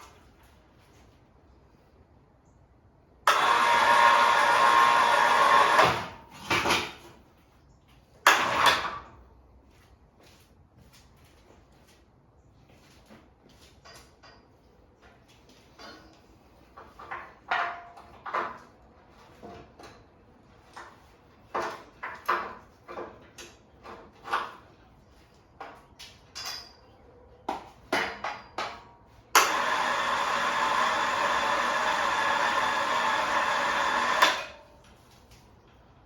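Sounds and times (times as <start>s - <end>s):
loud steady machine noise: 3.3s - 6.1s, 29.4s - 34.6s
objects knocking and clanking: 5.7s - 7.2s, 15.6s - 24.8s, 25.6s - 29.6s.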